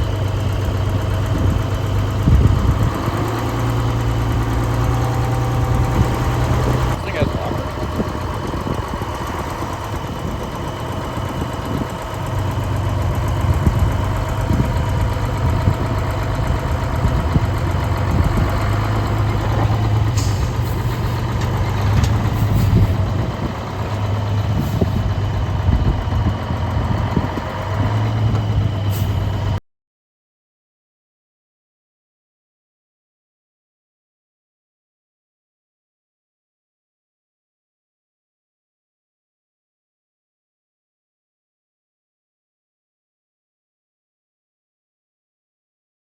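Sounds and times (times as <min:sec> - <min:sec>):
truck engine humming: 0:00.0 - 0:29.6.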